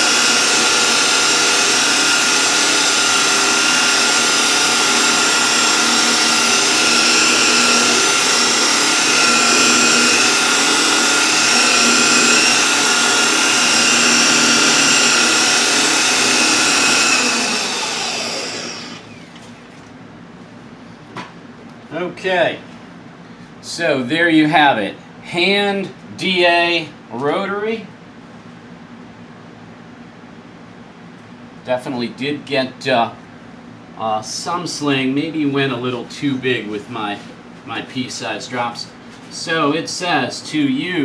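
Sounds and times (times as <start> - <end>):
rotary polisher whine: 0.0 - 19.4.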